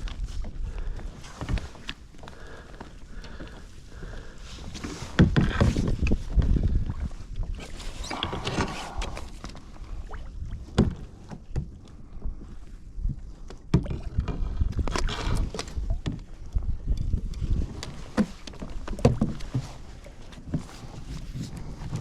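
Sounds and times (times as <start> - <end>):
wind on microphone: 5.0 - 11.2, 12.0 - 22.0
knocks against a kayak: 5.1 - 6.5, 10.7 - 11.8, 18.0 - 19.8.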